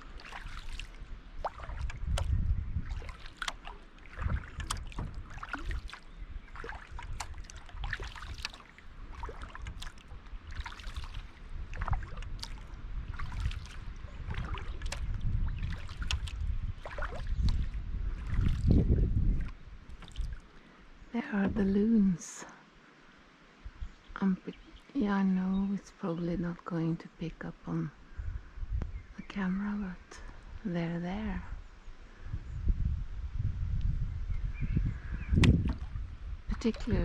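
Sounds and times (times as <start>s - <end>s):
paddle splashing water: 0.0s - 21.8s, 35.4s - 37.0s
wind rumble on microphone: 0.0s - 22.2s, 23.6s - 37.0s.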